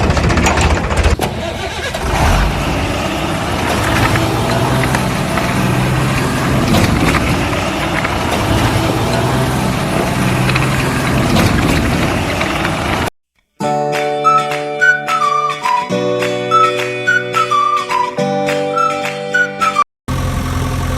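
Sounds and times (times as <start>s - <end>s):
engine running at low revs: 1.2s - 13.1s, 20.1s - 20.9s
music: 13.5s - 19.8s.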